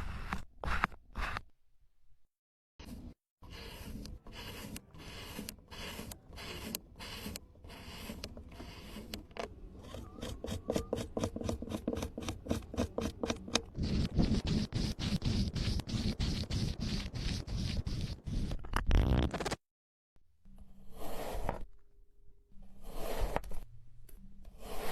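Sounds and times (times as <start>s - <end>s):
sand being scraped and rubbed: 2.8s - 9.1s, 13.7s - 18.5s, 20.9s - 21.6s, 22.8s - 23.4s, 24.6s - 24.9s.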